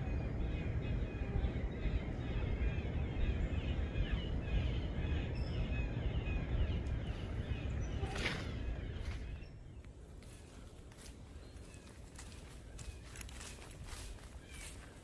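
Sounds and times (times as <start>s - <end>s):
low fluttering rumble: 0.0s - 11.4s
small birds chirping: 0.0s - 15.0s.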